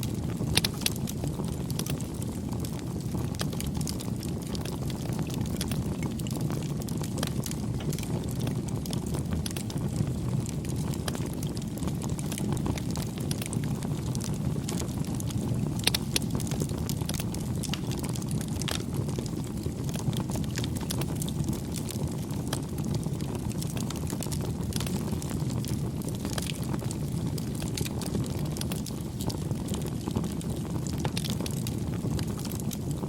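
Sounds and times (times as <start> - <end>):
campfire crackling and popping: 0.0 - 33.0.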